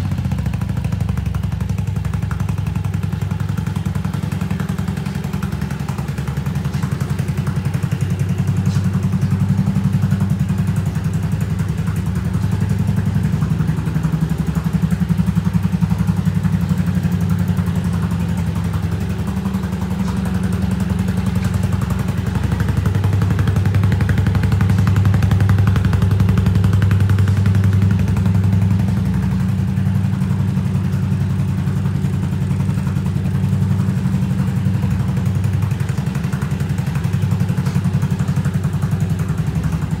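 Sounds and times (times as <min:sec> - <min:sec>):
scooter engine idling: 0:00.0 - 0:40.0.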